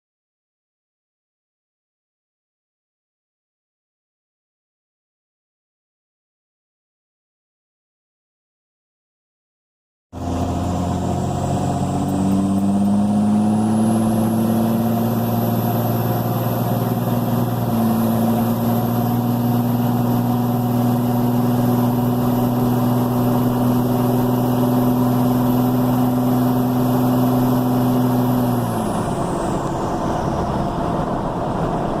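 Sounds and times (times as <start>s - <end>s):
diesel truck engine revving: 10.2s - 32.0s.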